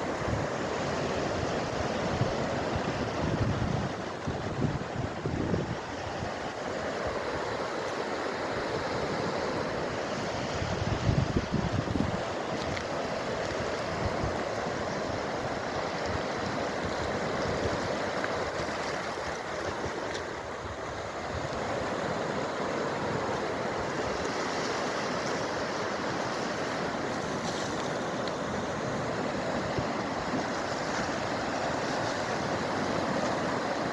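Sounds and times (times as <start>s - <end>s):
wind buffeting microphone: 0.0s - 7.8s, 9.1s - 25.8s
sea waves washing: 0.0s - 33.9s.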